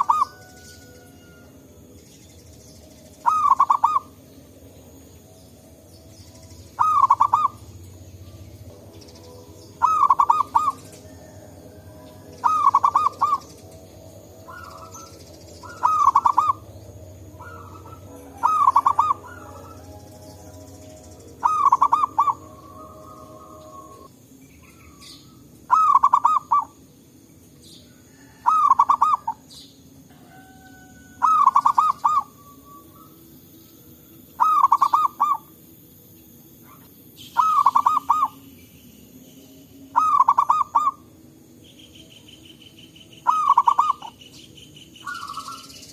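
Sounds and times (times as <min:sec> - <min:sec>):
dove cooing: 0:00.0 - 0:01.5, 0:03.2 - 0:04.4, 0:06.8 - 0:08.6, 0:09.7 - 0:26.8, 0:28.0 - 0:29.4, 0:30.1 - 0:33.2, 0:34.4 - 0:35.6, 0:36.6 - 0:38.4, 0:39.9 - 0:41.1, 0:43.2 - 0:44.2, 0:45.0 - 0:45.9.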